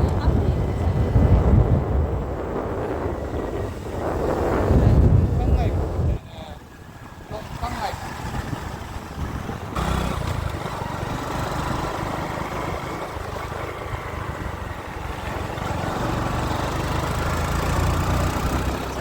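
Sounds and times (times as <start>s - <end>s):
road and wind noise: 0.0s - 19.0s
vehicle engine running: 6.7s - 19.0s.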